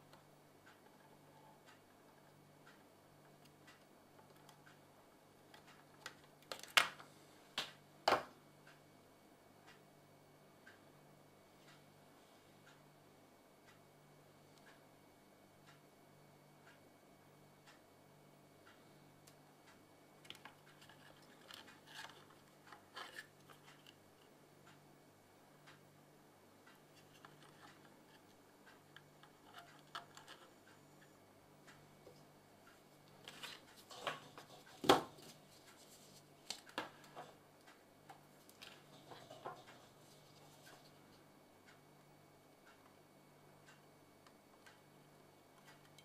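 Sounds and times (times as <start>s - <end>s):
faint clicks and scratches: 0.0s - 7.8s, 18.6s - 24.8s, 26.6s - 41.8s, 42.6s - 46.0s
steady low hum: 0.0s - 46.0s.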